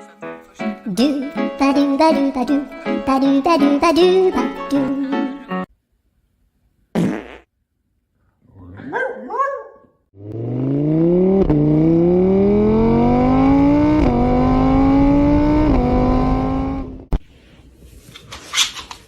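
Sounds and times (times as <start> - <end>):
car engine accelerating: 10.2 - 17.1.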